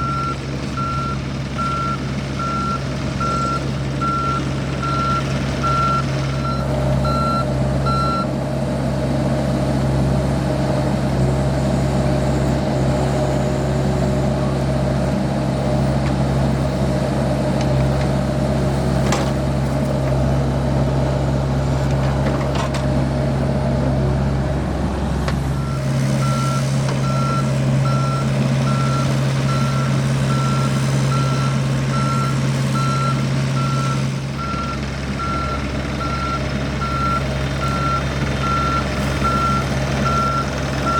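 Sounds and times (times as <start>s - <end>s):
reversing alarm beeping: 0.0s - 8.3s, 25.6s - 40.9s
excavator diesel engine drone: 0.0s - 40.9s.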